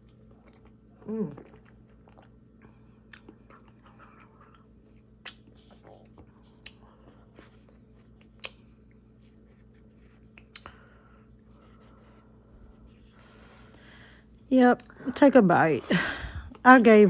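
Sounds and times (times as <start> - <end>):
quiet chewing: 0.0 - 13.9
faint steady hum: 0.0 - 17.0
wet mouth clicks: 3.1 - 4.6, 5.2 - 6.0, 6.6 - 6.8, 8.4 - 8.6, 10.4 - 10.8.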